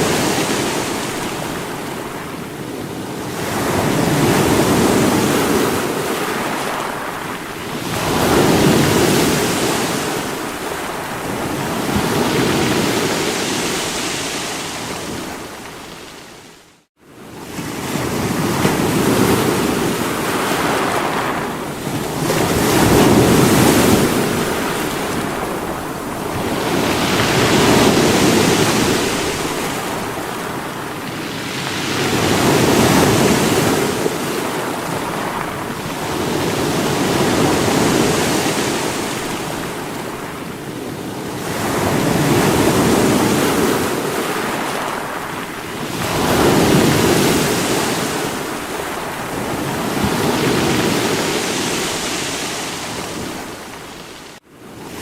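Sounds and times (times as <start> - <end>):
sea waves breaking against rocks: 17.3 - 54.4.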